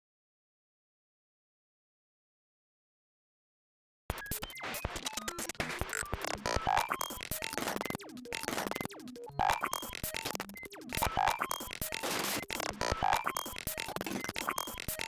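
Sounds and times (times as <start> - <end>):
glitchy electronic music: 4.1 - 15.0.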